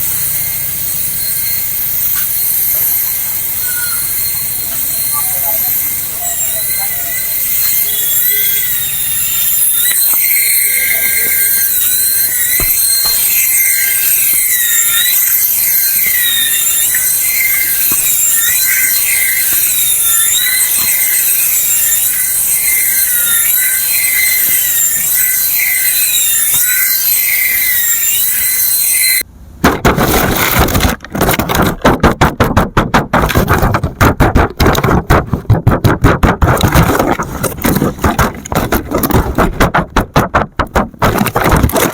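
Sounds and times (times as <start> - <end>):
electric motor whine: 0.0 - 29.2
rapid clattering pulses: 0.0 - 29.2, 29.9 - 41.9.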